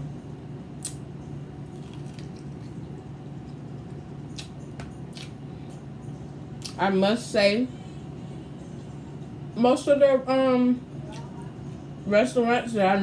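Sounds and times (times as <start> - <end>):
steady low hum: 0.0 - 13.0
person chewing and lip smacking: 0.2 - 1.0, 1.7 - 2.8, 3.5 - 5.4.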